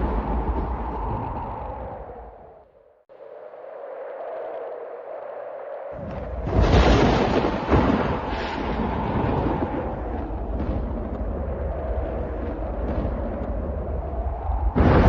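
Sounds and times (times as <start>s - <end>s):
rolling thunder rumble: 0.0s - 2.6s, 6.0s - 15.0s
sharp thunder crack: 6.0s - 11.5s, 14.8s - 15.0s
thunder clap: 6.0s - 15.0s.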